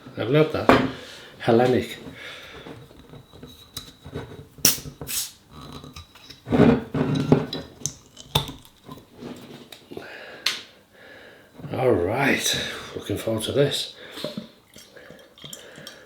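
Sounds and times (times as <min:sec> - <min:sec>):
glass bottles and tableware clinking: 0:00.6 - 0:01.1, 0:05.6 - 0:09.0
tableware clattering: 0:00.6 - 0:01.2, 0:05.6 - 0:08.7.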